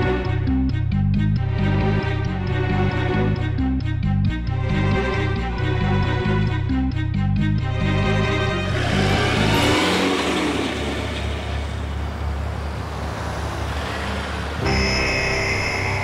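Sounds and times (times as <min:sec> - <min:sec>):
background music: 0:00.0 - 0:12.0, 0:14.6 - 0:16.0
car engine pulling away: 0:07.6 - 0:16.0
road noise on wet road: 0:08.6 - 0:16.0
steady high chord: 0:14.6 - 0:16.0.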